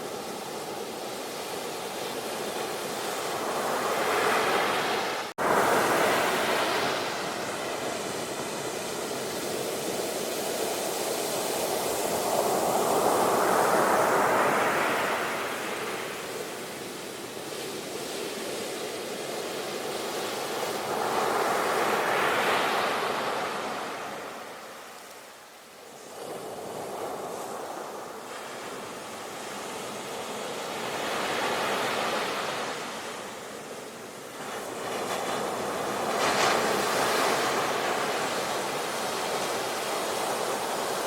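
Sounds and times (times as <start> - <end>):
sea waves breaking on beach: 0.0 - 41.0.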